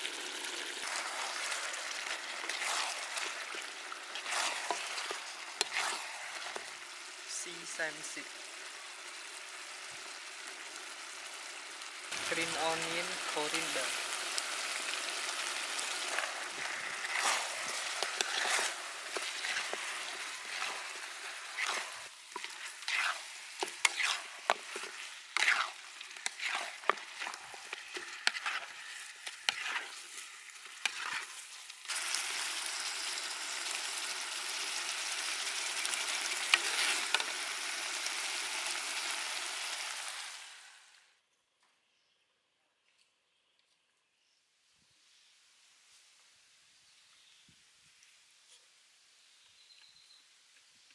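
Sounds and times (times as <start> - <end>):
food sizzling in a wok: 0.0 - 41.1
ladle scraping a pan: 0.8 - 6.7, 15.6 - 31.5, 36.4 - 37.3.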